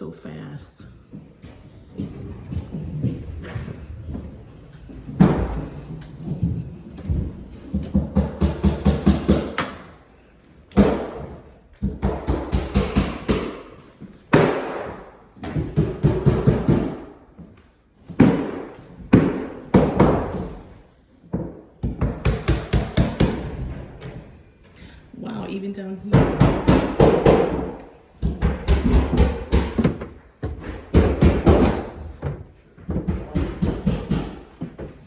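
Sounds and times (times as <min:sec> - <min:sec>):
rapid knocking and thumping: 0:26.1 - 0:35.0.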